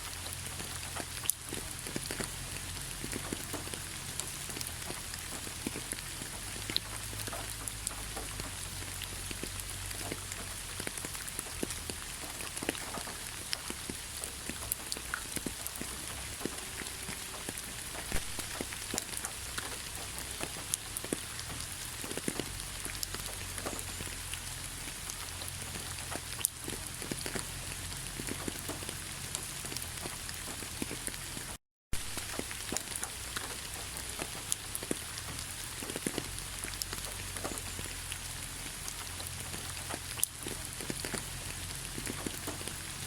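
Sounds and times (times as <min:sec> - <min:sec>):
heavy rain falling: 0:00.0 - 0:43.0.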